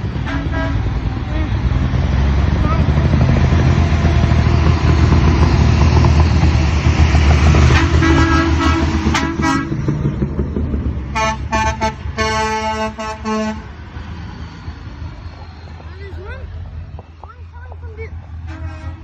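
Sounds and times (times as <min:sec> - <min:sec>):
heavy road traffic rumble: 0:00.0 - 0:19.0
vehicle horn: 0:00.2 - 0:01.6, 0:07.6 - 0:09.8, 0:11.1 - 0:13.8, 0:18.4 - 0:19.0.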